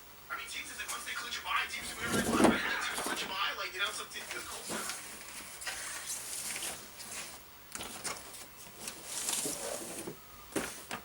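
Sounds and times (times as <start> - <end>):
wrapping paper rustling: 4.2 - 11.0.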